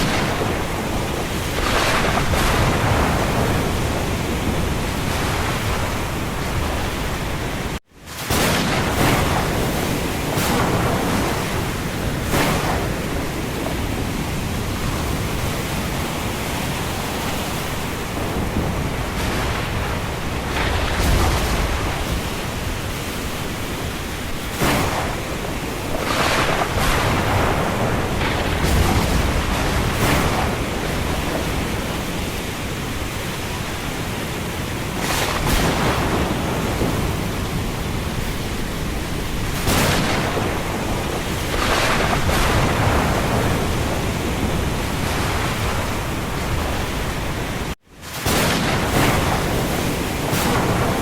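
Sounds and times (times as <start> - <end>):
low rumbling thunder: 0.0 - 51.0
rain: 0.0 - 51.0
wind: 0.0 - 51.0.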